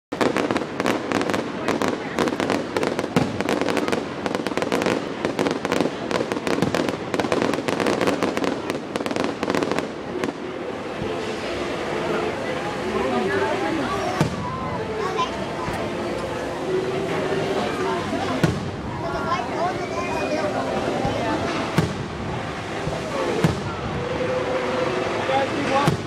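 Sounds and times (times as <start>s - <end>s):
fireworks crackling pops: 0.1s - 11.7s, 13.2s - 16.4s, 17.7s - 26.0s
people's voices: 0.1s - 26.0s.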